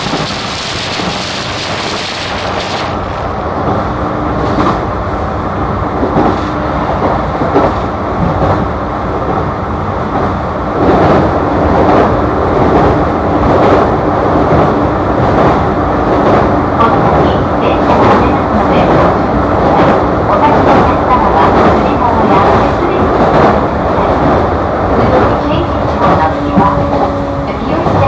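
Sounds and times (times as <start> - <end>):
loud rushing hiss: 0.0 - 3.0
train running noise inside car: 0.0 - 28.0.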